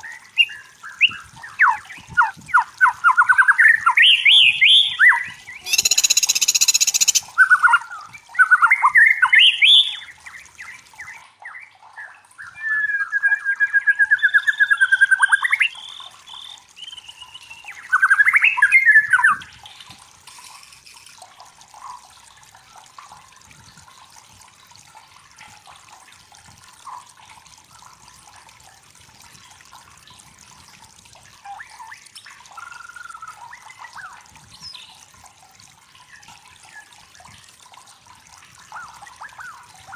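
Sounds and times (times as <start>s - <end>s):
songbird singing varied phrases: 0.0s - 19.6s
faint bird chirps: 4.1s - 10.1s.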